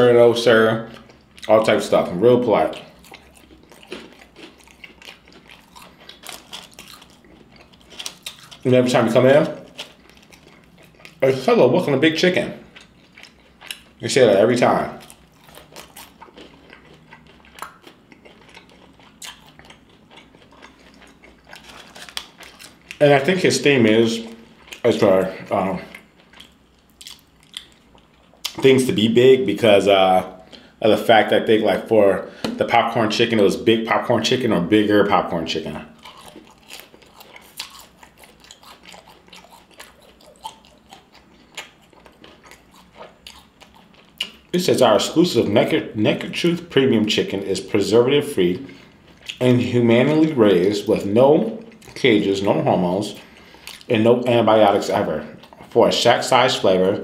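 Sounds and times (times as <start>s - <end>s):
person chewing food: 0.8s - 28.7s, 35.8s - 44.9s, 48.6s - 50.6s, 51.4s - 52.1s, 53.1s - 56.8s
crisp chewing clicks: 15.0s - 23.0s.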